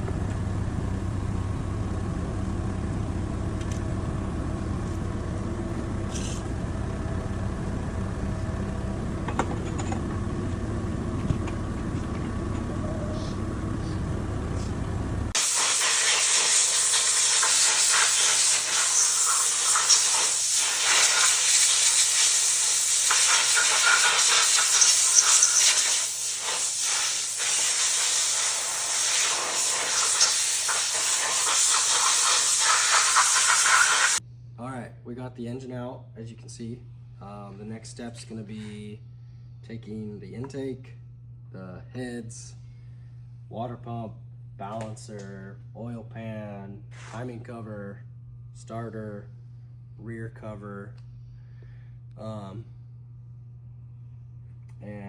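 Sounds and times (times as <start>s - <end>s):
low vehicle-like rumble: 0.0s - 15.4s
high-pitched hiss: 15.4s - 34.2s.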